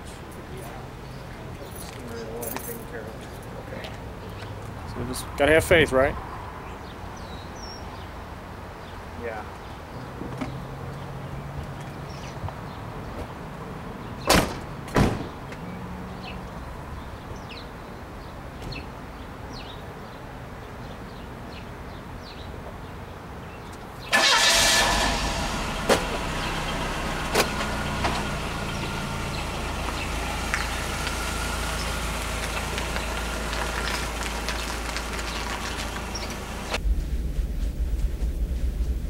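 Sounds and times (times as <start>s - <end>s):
car engine starting and running: 24.1s - 37.3s.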